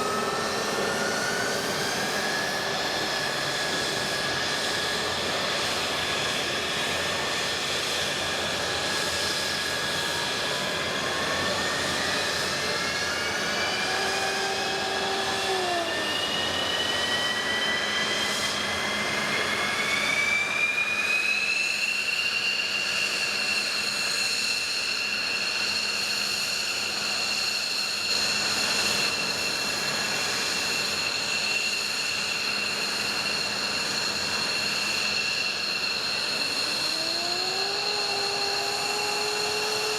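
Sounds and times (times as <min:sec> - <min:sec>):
jet engine spooling up: 0:00.0 - 0:39.9.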